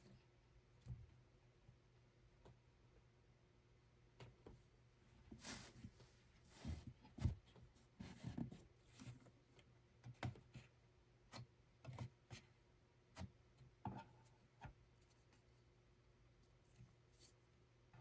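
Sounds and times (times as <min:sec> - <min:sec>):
faint clicks and light knocks: 0:04.1 - 0:04.6, 0:06.9 - 0:10.7.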